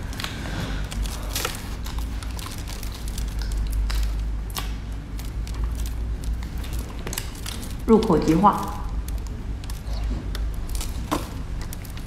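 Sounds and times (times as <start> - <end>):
wet squishy chewing: 0.0 - 12.0.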